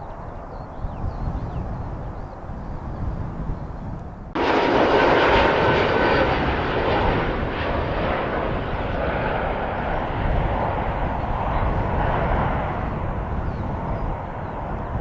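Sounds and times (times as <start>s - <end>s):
jet engines roaring: 4.3s - 15.0s
thin engine whine: 4.4s - 10.2s.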